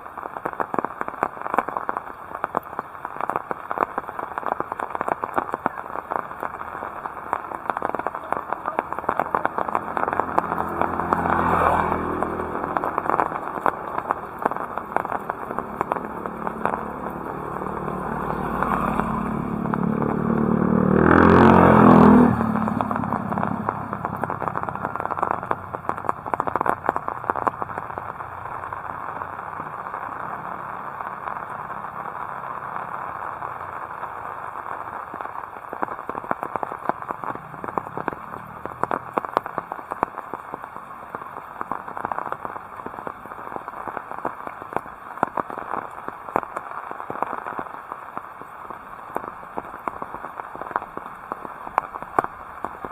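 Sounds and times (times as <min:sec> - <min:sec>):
heavy rain falling: 0:00.0 - 0:52.9
vehicle engine passing: 0:07.8 - 0:31.8.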